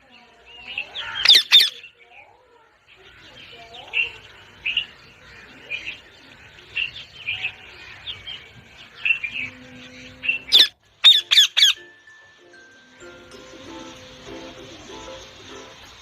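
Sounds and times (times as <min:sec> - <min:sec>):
parrot screeching: 0:01.0 - 0:01.8, 0:10.5 - 0:11.8
parrot chirping: 0:01.0 - 0:01.9, 0:10.4 - 0:16.0.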